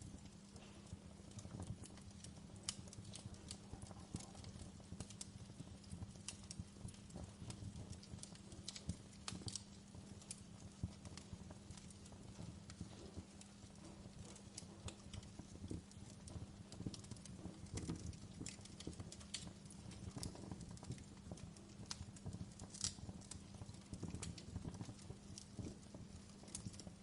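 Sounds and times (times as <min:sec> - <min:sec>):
fire crackling and popping: 0:00.0 - 0:27.0
low fire rumble: 0:00.0 - 0:27.0.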